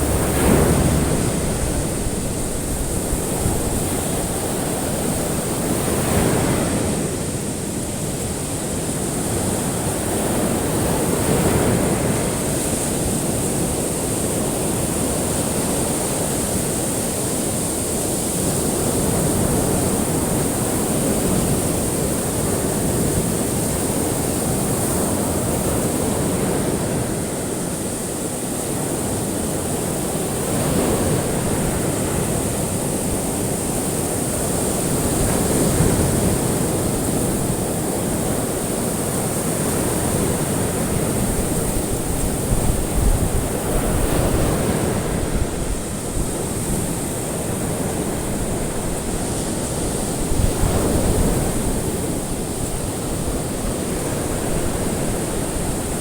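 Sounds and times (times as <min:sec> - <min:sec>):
faint high hiss: 0:00.0 - 0:05.5
ocean waves washing on shore: 0:00.0 - 0:56.0.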